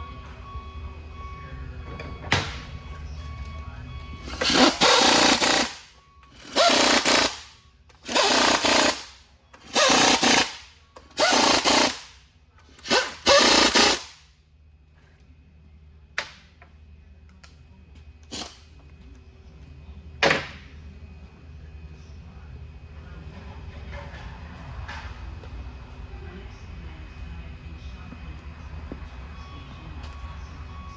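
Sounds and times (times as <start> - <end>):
air impact wrench rattling: 4.3 - 12.2, 12.8 - 14.2, 18.3 - 18.6.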